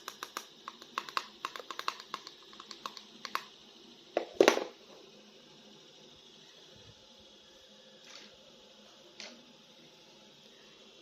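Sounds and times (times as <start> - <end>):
plastic toys clicking: 0.0 - 3.5.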